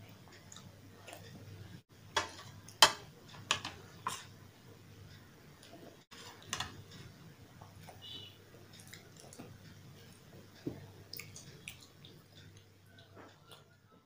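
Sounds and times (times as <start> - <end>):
wet chewing with mouth clicks: 8.7 - 13.8.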